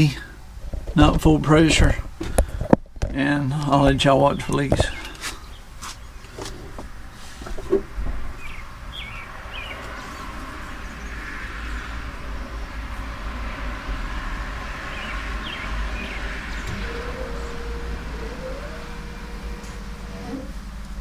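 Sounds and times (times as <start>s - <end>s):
outdoor background hiss: 0.0s - 21.0s
steady whining tone: 1.5s - 21.0s
birds chirping: 3.2s - 6.9s, 8.3s - 12.6s, 14.1s - 21.0s.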